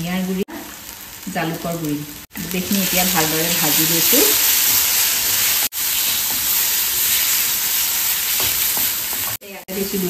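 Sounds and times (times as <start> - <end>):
paste sizzling in hot oil: 2.1 - 10.0
spatula stirring: 2.9 - 9.4.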